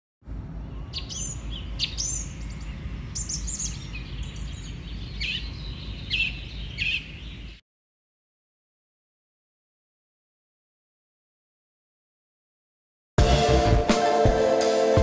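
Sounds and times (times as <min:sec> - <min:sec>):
birds chirping: 0:00.4 - 0:07.6.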